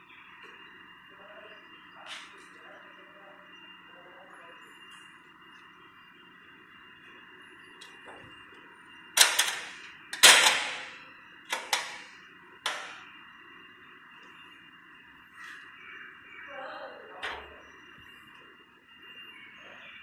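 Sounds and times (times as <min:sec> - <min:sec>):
batter mixer humming: 0:02.6 - 0:20.0
sharp metallic clanks: 0:09.2 - 0:12.1.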